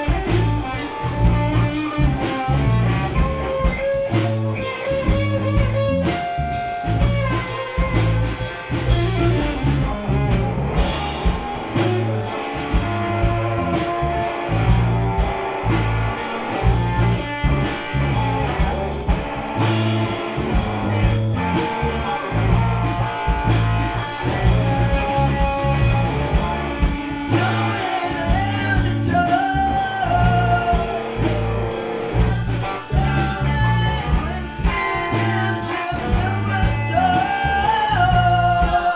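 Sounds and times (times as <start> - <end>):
live rock band playing: 0.0 - 38.9
person singing: 21.3 - 38.9.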